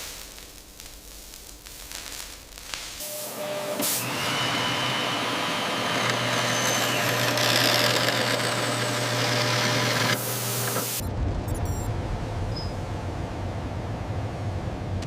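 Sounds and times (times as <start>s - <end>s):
industrial machine running: 3.0s - 15.0s
low hum: 11.0s - 15.0s.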